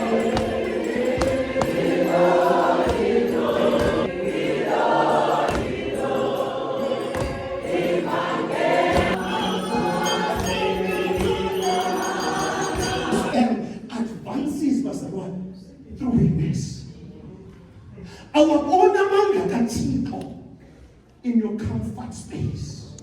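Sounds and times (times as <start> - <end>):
choir singing gospel: 0.0 - 14.1.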